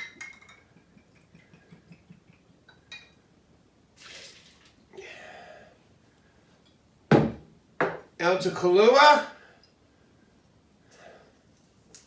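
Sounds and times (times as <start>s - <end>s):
glass bottles clinking: 0.0s - 0.8s, 2.7s - 3.2s
liquid pouring: 4.0s - 4.8s.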